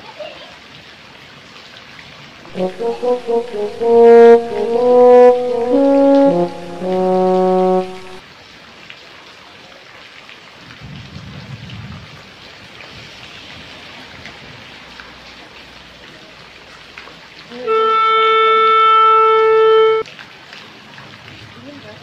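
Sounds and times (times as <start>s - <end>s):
held chord of horn-like tones: 2.5s - 8.2s, 17.7s - 20.0s.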